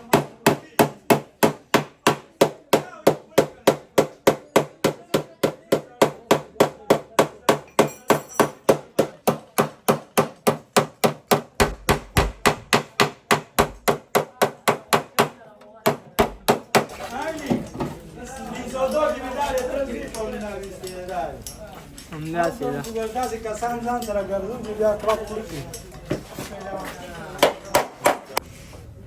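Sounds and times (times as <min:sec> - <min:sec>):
hammer beating sheet metal: 0:00.0 - 0:16.9, 0:27.4 - 0:28.4.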